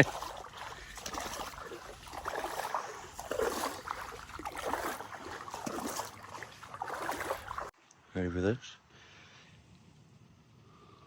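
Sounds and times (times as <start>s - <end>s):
small water splashes: 0.0s - 7.8s
water sloshing and trickling: 0.0s - 7.8s.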